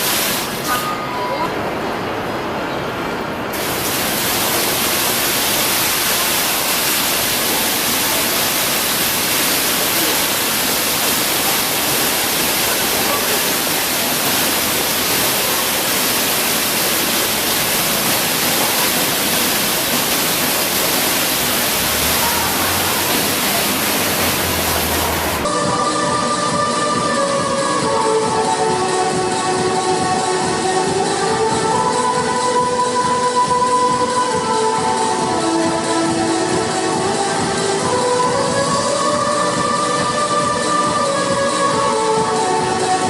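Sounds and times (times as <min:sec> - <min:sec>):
water pouring and splashing: 0:00.0 - 0:00.8, 0:03.6 - 0:25.5.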